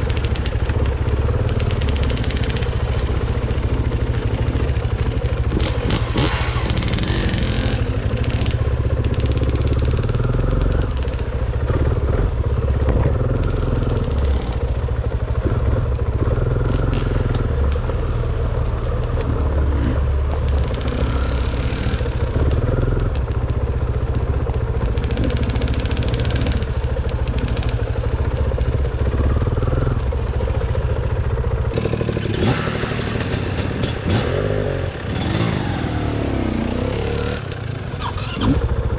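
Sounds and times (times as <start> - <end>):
dirt bike engine revving: 5.4 - 18.2, 19.2 - 23.3, 24.8 - 27.8, 31.7 - 38.9
knocks clatter and scrapes: 31.7 - 34.6.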